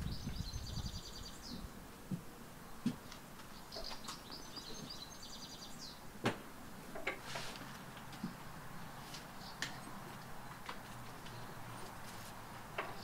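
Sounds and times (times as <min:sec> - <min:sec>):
songbird trilling: 0:00.0 - 0:01.7.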